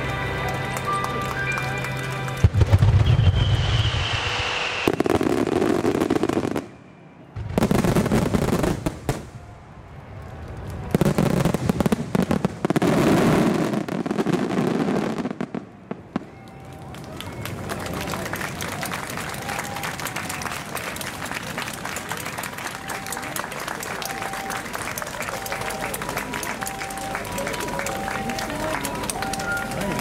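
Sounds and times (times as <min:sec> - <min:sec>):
fireworks bursting and crackling: 0:00.2 - 0:06.8, 0:07.4 - 0:09.5, 0:10.2 - 0:16.8, 0:21.2 - 0:30.0
firework whistle: 0:02.5 - 0:07.6, 0:22.7 - 0:30.0.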